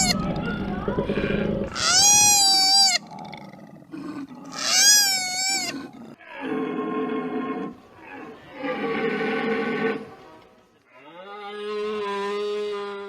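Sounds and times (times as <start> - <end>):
high-pitched animal calls: 0.0 - 3.1, 4.5 - 5.8.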